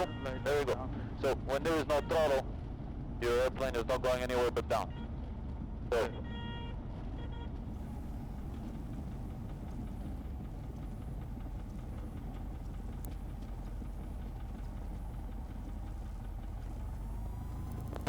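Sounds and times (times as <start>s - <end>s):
airplane cabin engine noise: 7.4s - 18.0s
faint click: 12.6s - 13.6s.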